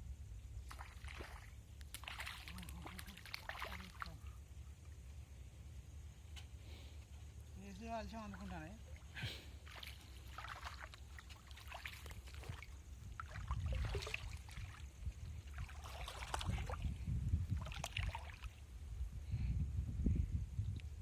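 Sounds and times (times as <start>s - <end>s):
low steady rumble: 0.0s - 0.7s
water splashing and sloshing: 0.6s - 5.0s, 7.9s - 18.8s.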